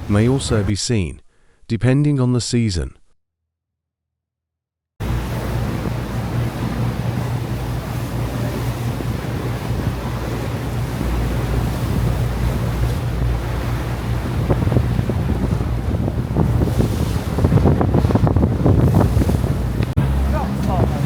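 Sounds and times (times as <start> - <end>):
sea rushing along hull: 0.0 - 0.7, 5.0 - 21.0
ferry engine droning: 5.0 - 21.0
wind buffeting microphone: 5.0 - 21.0.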